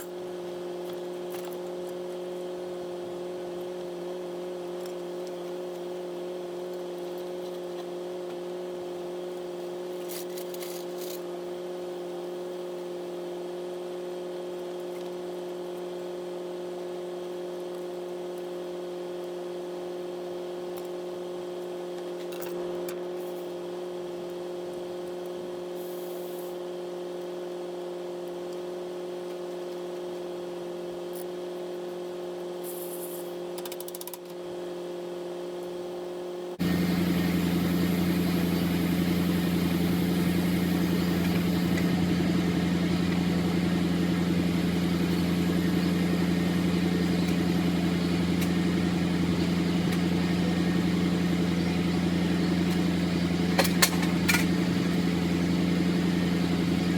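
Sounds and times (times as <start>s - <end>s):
engine idling: 36.6s - 56.9s
rough engine idle with low hum: 36.6s - 56.9s.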